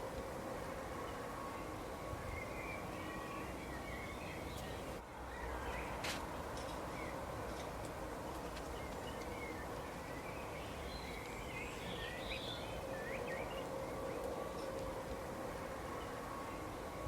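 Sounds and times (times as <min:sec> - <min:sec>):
faint hum: 0:00.0 - 0:17.0
small birds chirping: 0:01.0 - 0:06.0, 0:08.4 - 0:14.8.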